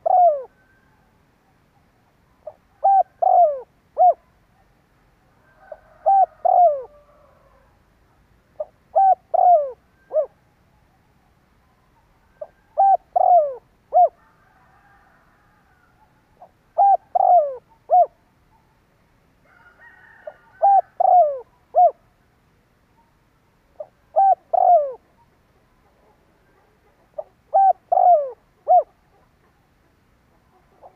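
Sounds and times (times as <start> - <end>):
dove cooing: 0.0 - 1.6, 2.4 - 4.4, 5.4 - 7.8, 8.6 - 10.4, 12.0 - 18.8, 19.6 - 22.1, 23.7 - 29.7, 30.3 - 30.9
faint bird chirping: 0.0 - 19.2, 20.4 - 30.9.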